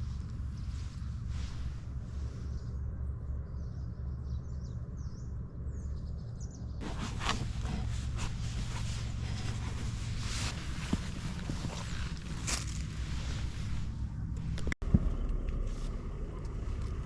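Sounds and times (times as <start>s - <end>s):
small birds chirping: 0.0s - 13.9s
low rumble: 0.0s - 17.0s
rustling and clattering: 6.8s - 14.8s.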